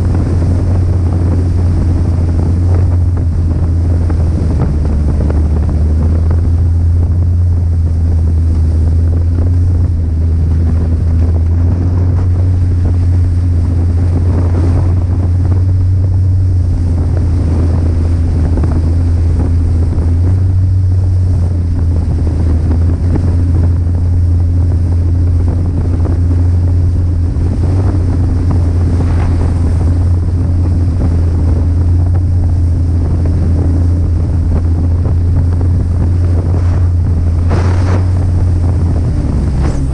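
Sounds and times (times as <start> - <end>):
snowmobile engine running: 0.0 - 39.9
wind buffeting the microphone: 0.0 - 39.9.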